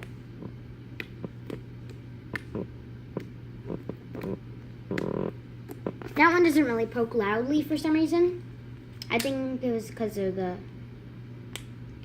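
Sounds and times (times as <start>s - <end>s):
buzzy slime squelch: 0.0s - 8.2s.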